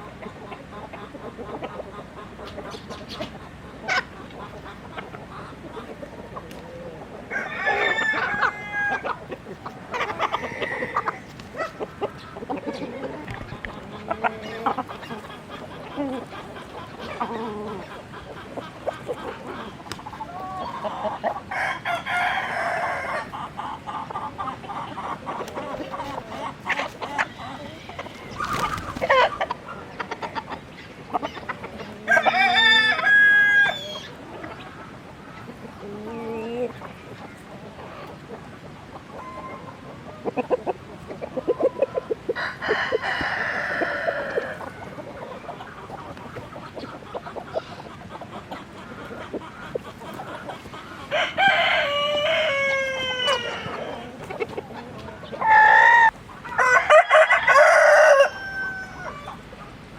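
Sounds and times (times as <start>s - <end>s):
chickens clucking: 0.0s - 59.9s
rooster crowing: 7.3s - 9.1s, 21.5s - 23.3s, 32.1s - 34.0s, 42.4s - 44.8s, 51.1s - 54.1s, 55.4s - 59.4s.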